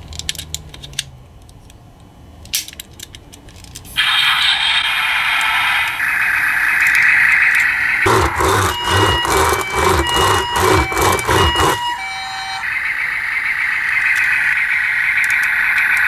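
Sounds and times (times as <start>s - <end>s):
two-tone ambulance siren: 6.1s - 16.0s.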